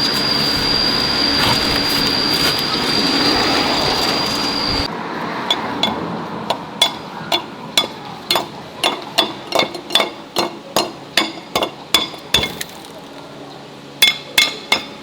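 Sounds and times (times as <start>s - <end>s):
machine whine: 0.0s - 4.9s.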